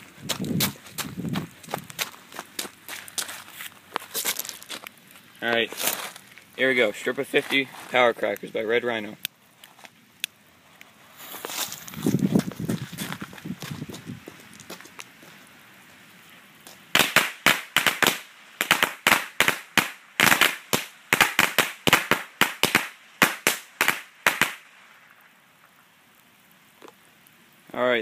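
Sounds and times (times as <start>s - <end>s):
firecrackers banging: 16.6s - 24.8s.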